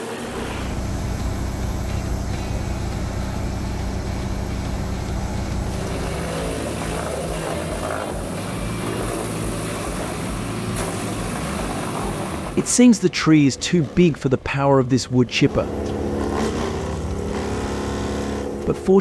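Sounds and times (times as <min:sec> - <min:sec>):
wood chipper engine: 0:00.0 - 0:12.7.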